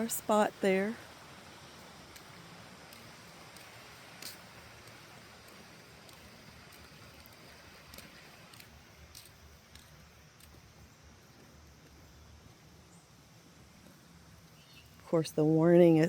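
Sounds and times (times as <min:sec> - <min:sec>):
footsteps on a path: 0:01.7 - 0:12.6
faint clicks: 0:02.9 - 0:10.6.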